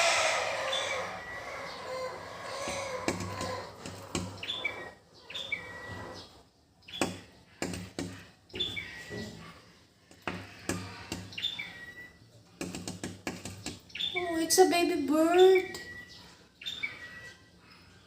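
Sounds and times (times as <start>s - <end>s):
baby bird chirping: 0.0s - 9.5s, 10.4s - 12.2s, 13.6s - 17.6s
sharp taps: 2.7s - 4.4s, 7.0s - 8.2s, 12.6s - 13.8s.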